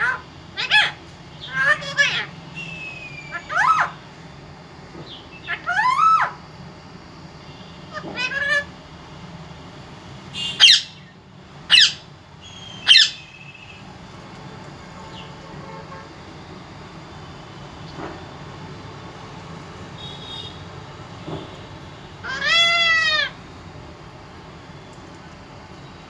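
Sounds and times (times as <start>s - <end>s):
parrot squawking: 0.0s - 4.0s, 5.4s - 6.4s, 7.9s - 8.8s, 10.4s - 11.1s, 11.7s - 13.8s, 22.2s - 23.4s.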